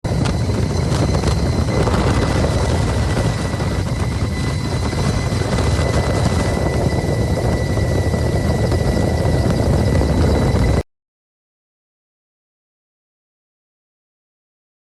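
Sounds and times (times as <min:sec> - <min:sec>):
helicopter rotor and engine: 0:00.0 - 0:10.8
thin whine: 0:00.0 - 0:10.8.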